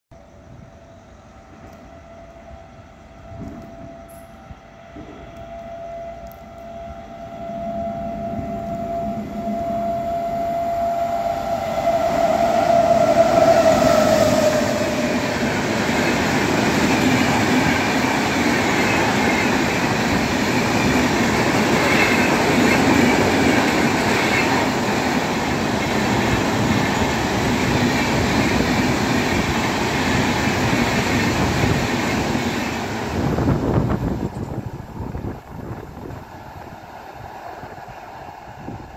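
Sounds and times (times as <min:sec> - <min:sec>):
locomotive high tone: 0:00.1 - 0:36.2
train wheels clattering over rails: 0:14.5 - 0:34.9.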